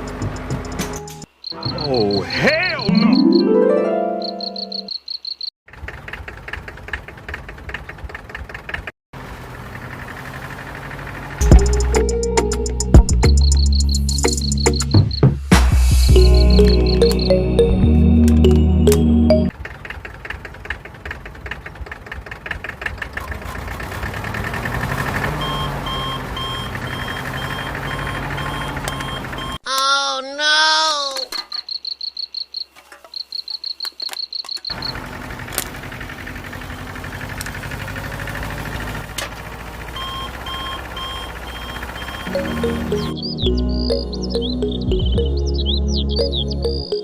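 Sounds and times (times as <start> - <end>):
beeper: 1.5 - 4.9, 16.1 - 19.5, 40.0 - 47.0
small motor clattering: 34.7 - 40.0.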